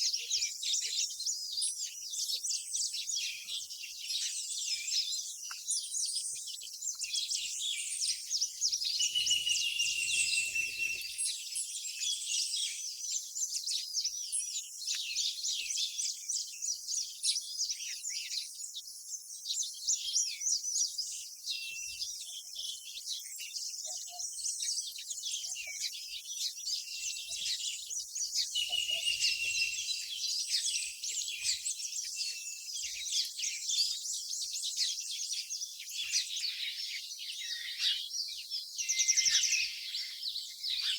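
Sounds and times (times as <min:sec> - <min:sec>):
small birds chirping: 0:00.0 - 0:40.9
whistled bird notes: 0:08.9 - 0:12.1, 0:28.3 - 0:34.0, 0:38.8 - 0:40.9.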